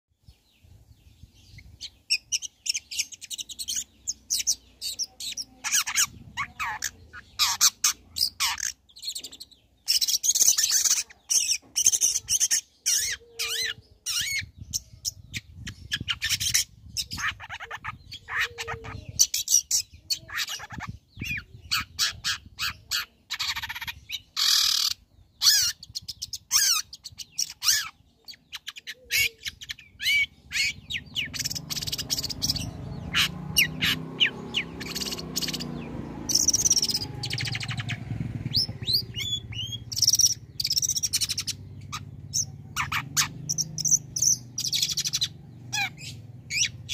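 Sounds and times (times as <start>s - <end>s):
shrike singing: 28.4s - 46.9s.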